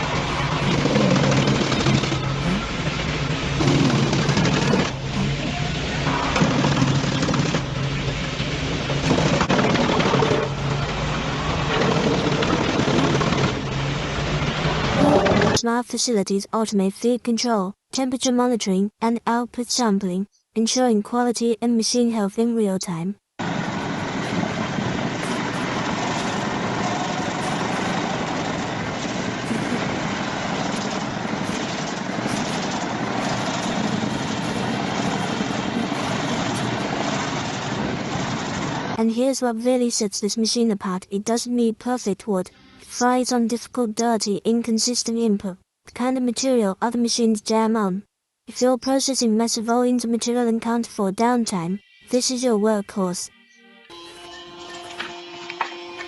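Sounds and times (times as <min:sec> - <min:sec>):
wood chipper running: 0:00.0 - 0:15.1, 0:23.4 - 0:39.0
heavy machinery engine hum: 0:00.0 - 0:15.6, 0:23.4 - 0:39.0.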